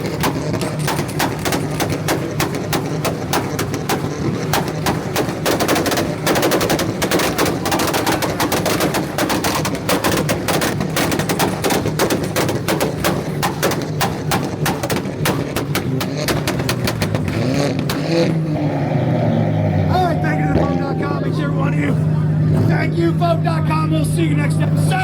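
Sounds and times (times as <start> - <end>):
exhaust pops and bangs: 0.0 - 18.6
car engines at rev limiter: 0.0 - 25.0.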